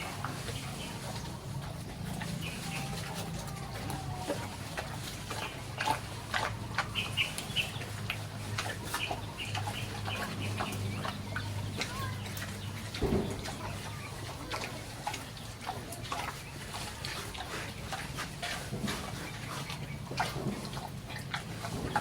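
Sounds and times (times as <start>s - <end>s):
farm animals calling: 0.0s - 22.0s
knocks and clatter: 11.9s - 13.8s.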